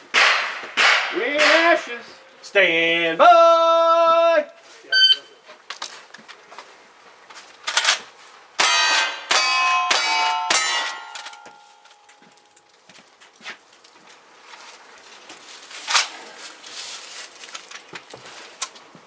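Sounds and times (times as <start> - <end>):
metallic clang of steel targets: 0.1 - 2.2, 8.6 - 12.6
gunshots: 8.6 - 11.1.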